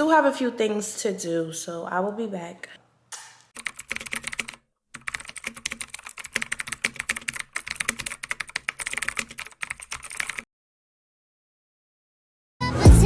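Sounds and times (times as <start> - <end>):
rapid typing on a keyboard: 3.6 - 10.5.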